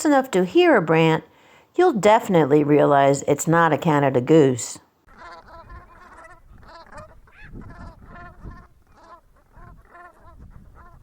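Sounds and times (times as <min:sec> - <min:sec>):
geese calling: 0:05.0 - 0:11.0.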